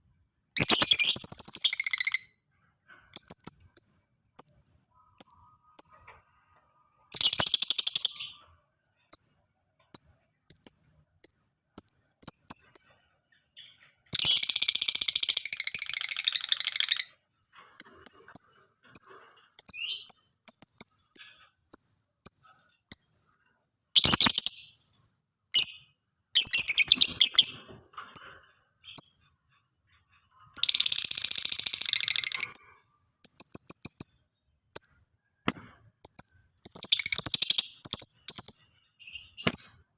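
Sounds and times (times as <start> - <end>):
lovebird chirping: 0.5 - 2.4, 3.1 - 6.2, 7.0 - 17.2, 17.8 - 29.6, 30.4 - 39.9.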